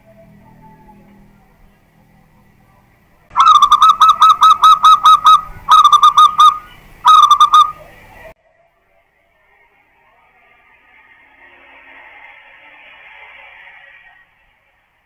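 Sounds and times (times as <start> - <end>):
dove cooing: 3.3 - 8.1.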